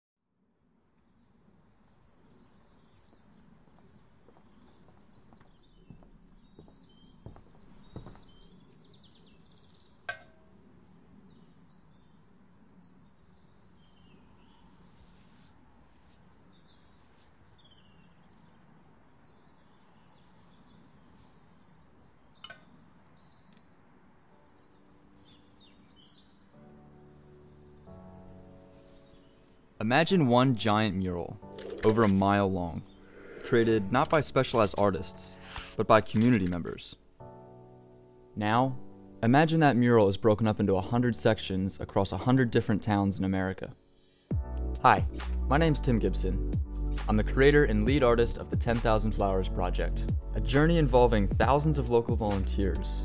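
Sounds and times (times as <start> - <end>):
birds chirping: 0.9 - 15.4, 16.0 - 37.1.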